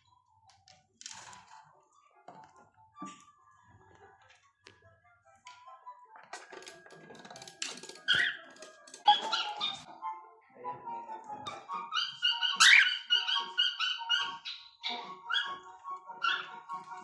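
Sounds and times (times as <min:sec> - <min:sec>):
cockatiels whistling and chirping: 0:08.1 - 0:08.5, 0:11.9 - 0:15.6.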